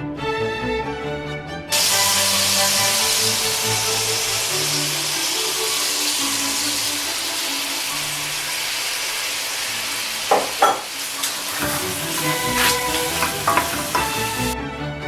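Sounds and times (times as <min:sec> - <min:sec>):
food sizzling in a pan: 0:01.7 - 0:14.6
utensil knocking against pan: 0:10.3 - 0:10.9, 0:11.6 - 0:14.2.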